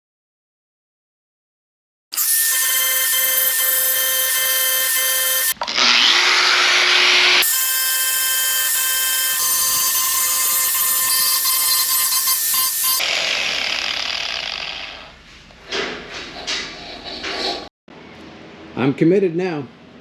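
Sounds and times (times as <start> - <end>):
power tool whining: 2.2 - 15.1.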